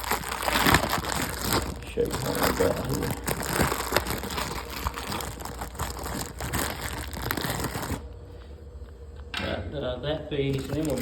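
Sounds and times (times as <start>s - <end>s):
packaging crinkling and rustling: 0.0s - 8.0s, 10.5s - 11.0s.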